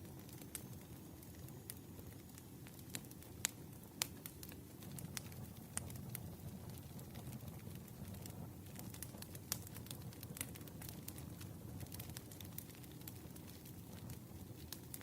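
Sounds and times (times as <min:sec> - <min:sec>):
campfire crackling: 0:00.0 - 0:15.0
sharp pops of burning wood: 0:00.1 - 0:15.0.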